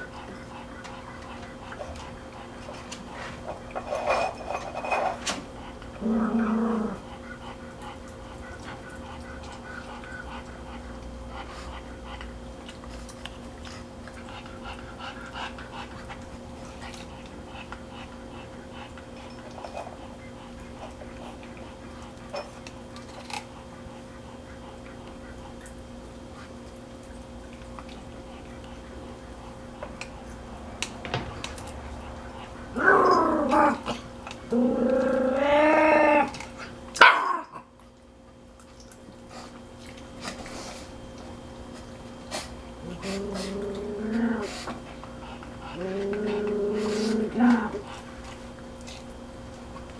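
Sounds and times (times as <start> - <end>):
puppy eating with wet smacks: 0.0 - 6.0, 7.0 - 35.2, 37.6 - 49.9
puppy panting: 0.0 - 6.0, 7.0 - 22.4
faint steady hum: 0.0 - 49.9
puppy barking: 37.0 - 37.4
puppy whining: 42.8 - 44.8.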